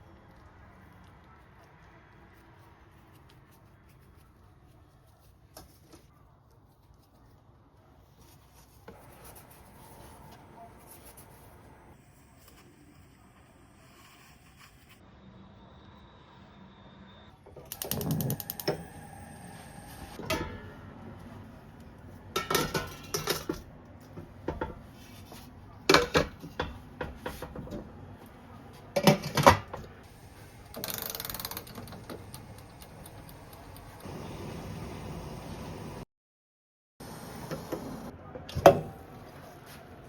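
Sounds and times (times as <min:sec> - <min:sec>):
cookware knocks and clicks: 0:22.4 - 0:23.6, 0:29.0 - 0:29.8.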